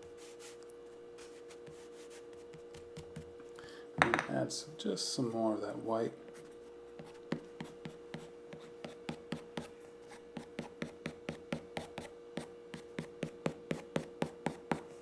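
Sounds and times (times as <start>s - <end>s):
faint steady hum: 0.0s - 15.0s
pencil strokes on paper: 0.1s - 0.6s.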